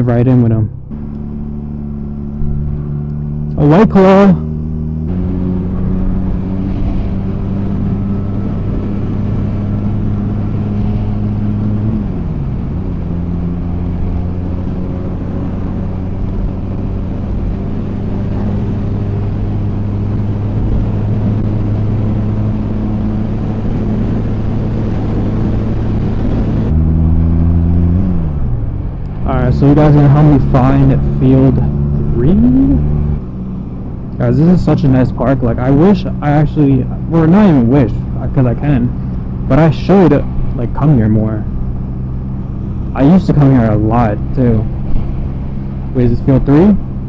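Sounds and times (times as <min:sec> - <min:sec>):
motorcycle engine running: 0:00.0 - 0:34.3.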